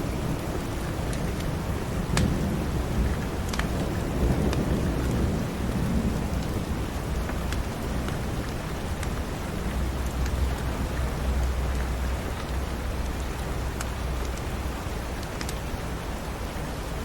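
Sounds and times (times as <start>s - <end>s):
thunder rumble: 0.0s - 12.2s
wood fire crackling: 0.0s - 15.7s
heavy rain: 0.0s - 17.0s.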